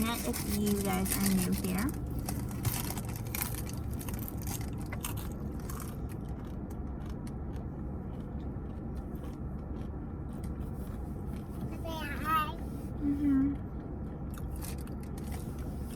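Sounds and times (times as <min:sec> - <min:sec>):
chewing: 0:00.0 - 0:11.8, 0:13.5 - 0:15.9
car interior rumble: 0:00.0 - 0:15.9
food packaging crinkling: 0:00.1 - 0:06.0.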